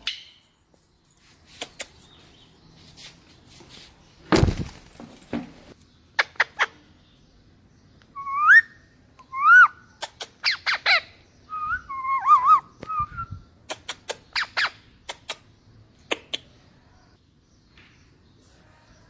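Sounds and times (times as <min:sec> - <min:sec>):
parrot chirps: 0:08.2 - 0:16.5
parrot whistles: 0:11.5 - 0:13.3.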